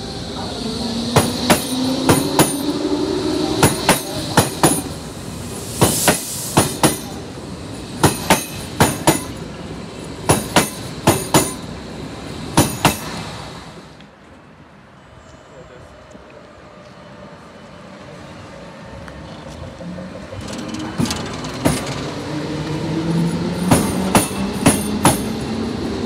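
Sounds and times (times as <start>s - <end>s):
train wheels clacking over rail joints: 1.1s - 2.8s, 3.6s - 5.0s, 5.8s - 7.2s, 8.0s - 9.4s, 10.2s - 11.7s, 12.6s - 13.2s, 20.3s - 25.6s.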